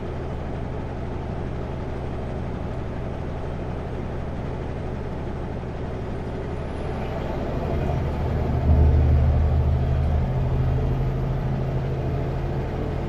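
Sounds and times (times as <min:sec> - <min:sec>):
road noise: 0:04.0 - 0:13.0
truck diesel engine droning: 0:04.5 - 0:13.0.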